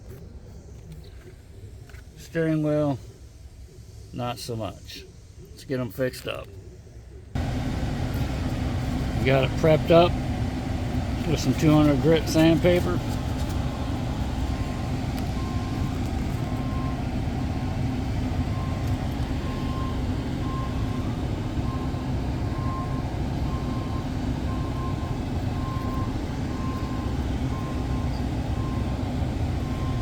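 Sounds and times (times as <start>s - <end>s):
low mechanical drone: 6.6s - 30.0s.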